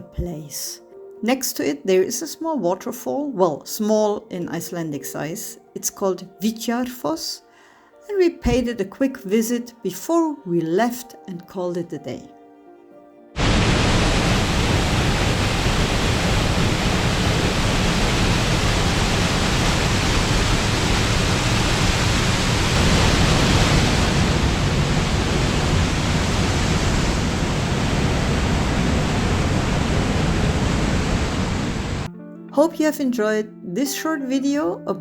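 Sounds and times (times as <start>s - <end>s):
waterfall rushing: 13.4s - 32.1s.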